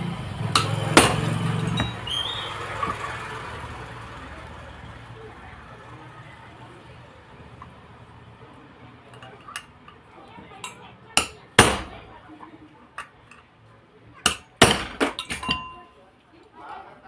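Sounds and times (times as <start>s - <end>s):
hammer knocking on metal: 0.6s - 2.1s, 11.2s - 12.1s, 14.3s - 15.8s
metallic ring: 0.6s - 2.1s, 14.3s - 15.9s.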